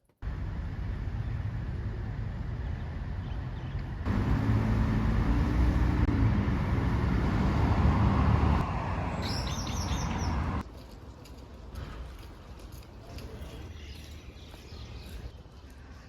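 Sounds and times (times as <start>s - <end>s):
high bird chirps: 9.1s - 10.5s.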